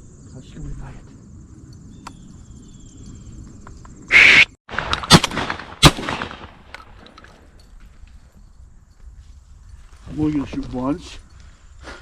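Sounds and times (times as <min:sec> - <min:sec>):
shotgun shots: 0:04.1 - 0:06.7.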